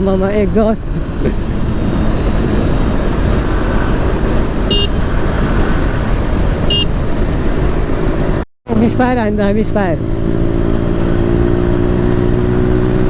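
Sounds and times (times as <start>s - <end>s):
dirt bike exhaust: 2.1s - 7.2s
short high beep: 4.7s - 5.0s.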